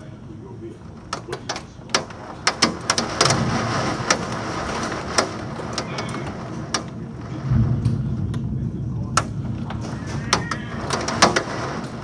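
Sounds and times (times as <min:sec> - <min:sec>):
heavy rain rushing: 0:00.1 - 0:12.0
drops or hail ticking: 0:01.1 - 0:12.0
low rumble: 0:03.2 - 0:12.0.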